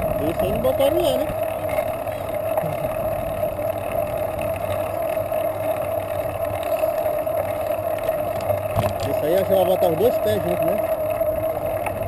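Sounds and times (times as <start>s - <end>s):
road and wind noise: 0.0s - 12.0s
vehicle drone: 0.0s - 12.0s.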